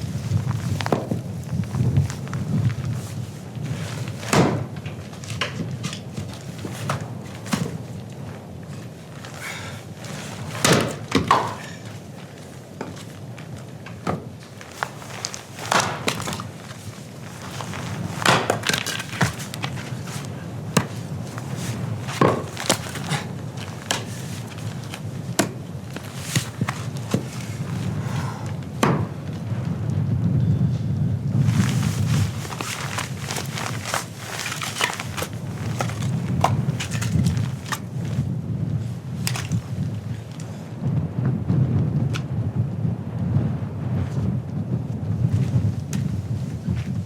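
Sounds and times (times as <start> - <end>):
wooden knocks and thunks: 0.3 - 7.9, 9.5 - 12.0, 13.8 - 29.4.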